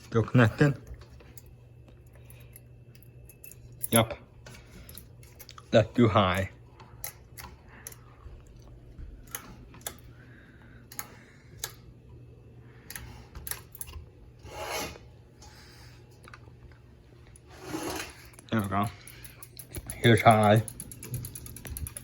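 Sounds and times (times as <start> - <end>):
ceiling fan low hum: 0.0 - 22.0
rubbing scrape: 14.4 - 15.0, 17.5 - 18.2.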